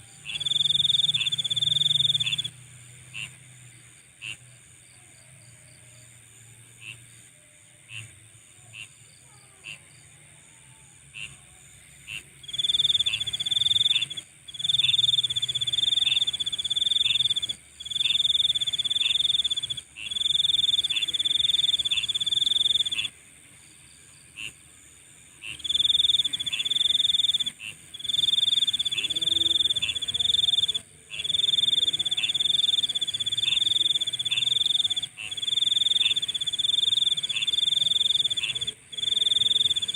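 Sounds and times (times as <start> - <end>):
insect high-pitched trill: 0.0 - 3.4, 12.1 - 39.9
short insect chirps: 0.2 - 3.3, 12.4 - 24.6, 25.4 - 39.9
loud buzzing insect call: 0.2 - 4.4, 12.0 - 39.9.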